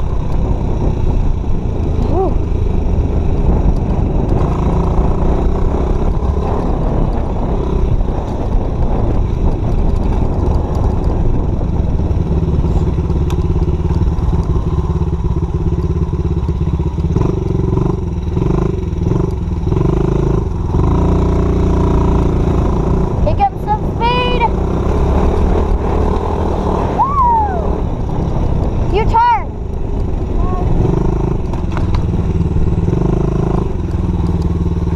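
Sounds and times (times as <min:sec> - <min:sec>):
dirt bike engine revving: 0:12.2 - 0:34.9.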